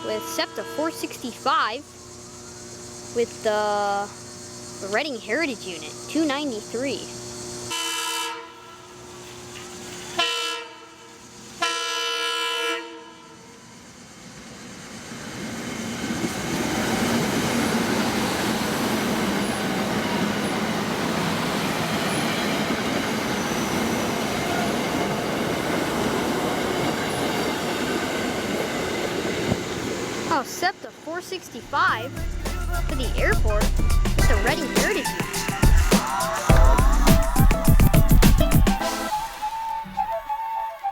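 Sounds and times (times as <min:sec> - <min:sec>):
train horn blasts: 0:00.0 - 0:01.3, 0:07.7 - 0:09.0, 0:10.1 - 0:13.6
train wheels rushing on rails: 0:13.4 - 0:38.8.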